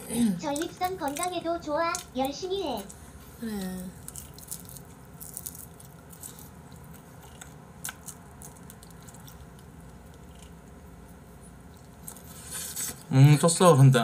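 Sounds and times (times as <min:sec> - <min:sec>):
man chewing meat: 0:04.0 - 0:13.0.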